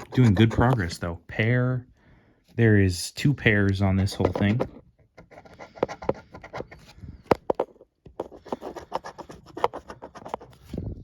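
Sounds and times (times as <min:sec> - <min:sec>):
scratching lottery ticket coating: 0:08.2 - 0:10.6.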